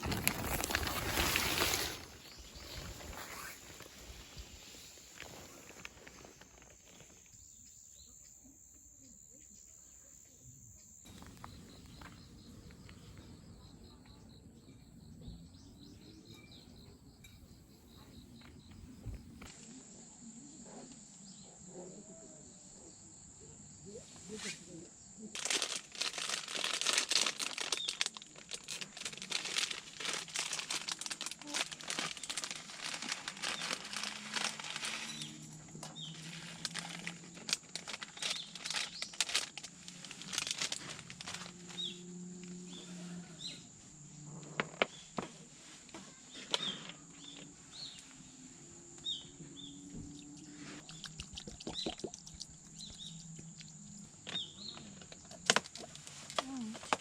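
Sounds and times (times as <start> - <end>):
crinkling handling noise: 0.0 - 7.3, 11.1 - 13.6, 25.4 - 41.9, 49.0 - 57.0.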